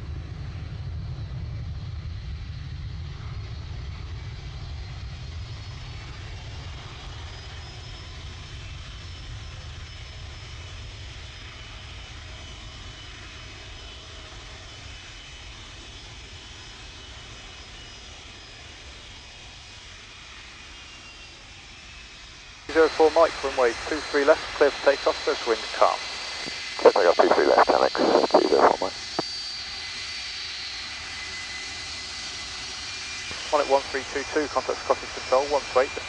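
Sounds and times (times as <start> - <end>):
jet engines rumbling: 10.5 - 36.0
faint high whine: 22.7 - 29.8, 32.7 - 36.0.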